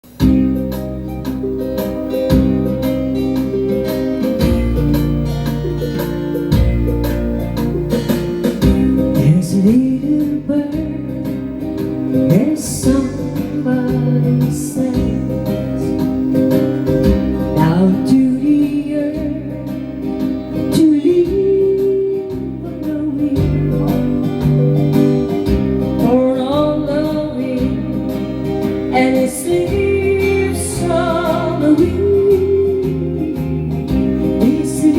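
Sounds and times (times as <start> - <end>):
acoustic guitar: 0.0 - 34.9
woman singing: 8.6 - 24.5, 25.8 - 34.9.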